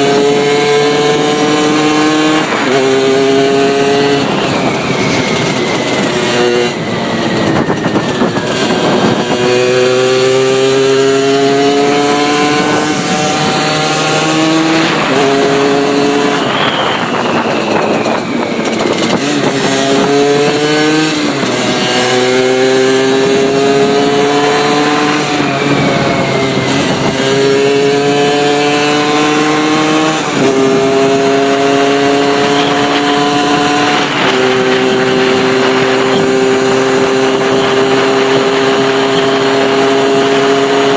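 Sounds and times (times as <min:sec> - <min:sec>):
moped two-stroke engine accelerating: 0:00.0 - 0:40.9
wind noise: 0:00.0 - 0:40.9.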